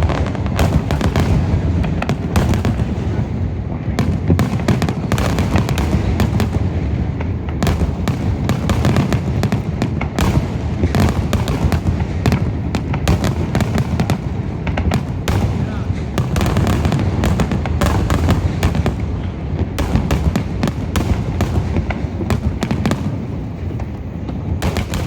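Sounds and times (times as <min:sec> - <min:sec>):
fireworks bursts and crackles: 0:00.0 - 0:25.0.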